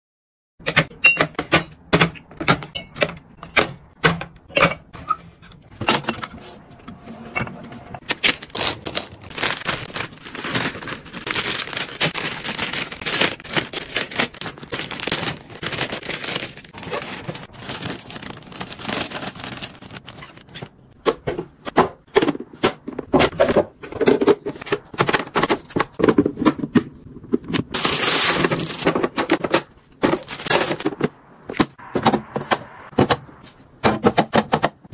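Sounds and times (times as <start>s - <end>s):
plastic containers clicking and knocking: 0.6s - 6.2s, 21.0s - 34.9s
packaging rustling: 8.0s - 20.8s, 27.7s - 28.9s, 30.0s - 31.0s.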